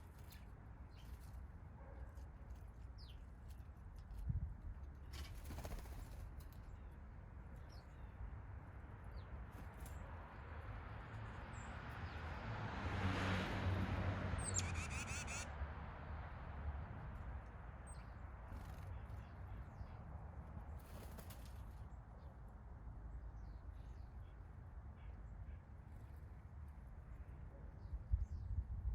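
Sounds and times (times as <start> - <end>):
songbirds chirping and trilling: 0.0 - 12.5, 13.8 - 15.5, 17.5 - 28.9
faint high bird call: 14.5 - 15.5.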